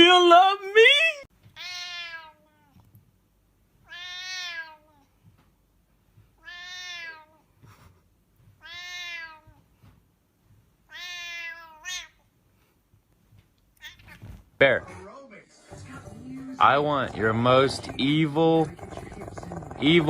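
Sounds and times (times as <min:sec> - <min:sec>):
cat meowing: 0:01.5 - 0:02.8, 0:03.8 - 0:05.1, 0:06.4 - 0:07.4, 0:08.6 - 0:09.7, 0:10.9 - 0:12.2, 0:13.8 - 0:14.4.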